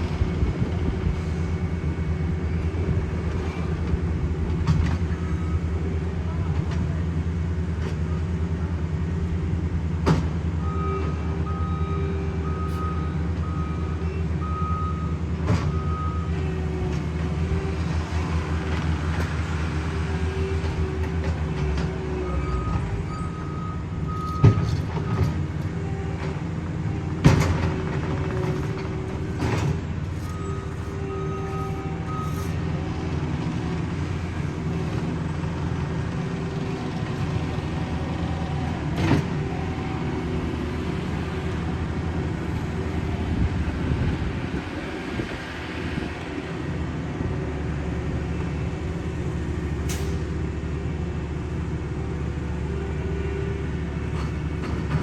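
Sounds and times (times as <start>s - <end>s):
diesel paving machine rumbling: 0.0s - 55.0s
reversing alarm beeping: 10.6s - 16.3s, 22.3s - 25.2s, 28.6s - 32.7s.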